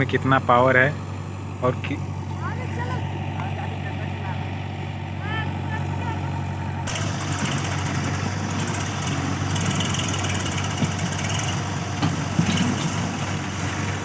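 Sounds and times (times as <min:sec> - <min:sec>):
diesel engines running: 0:00.0 - 0:14.0
wide rushing noise of soil: 0:05.2 - 0:14.0.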